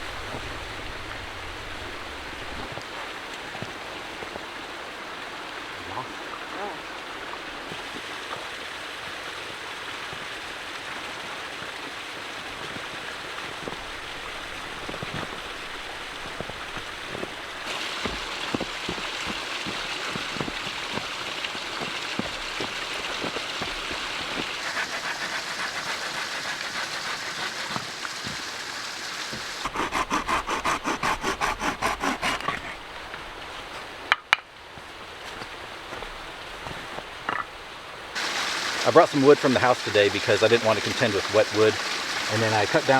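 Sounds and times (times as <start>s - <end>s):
creek water running: 0.0s - 33.8s, 37.9s - 42.9s
fast even strokes: 23.6s - 27.9s, 29.5s - 32.4s.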